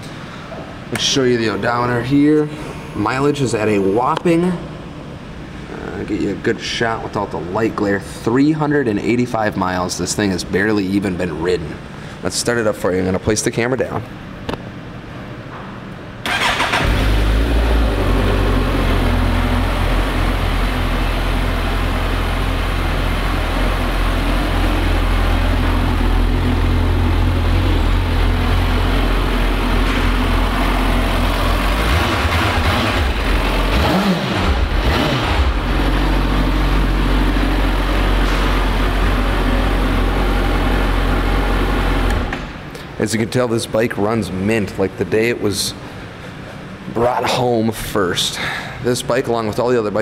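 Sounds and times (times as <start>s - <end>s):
motorcycle engine starting: 16.2s - 42.3s.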